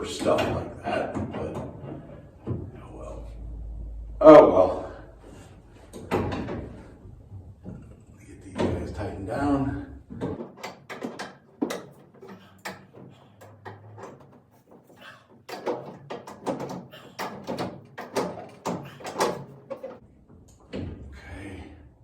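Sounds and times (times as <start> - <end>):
wrench tightening pipe fittings: 10.3 - 20.0.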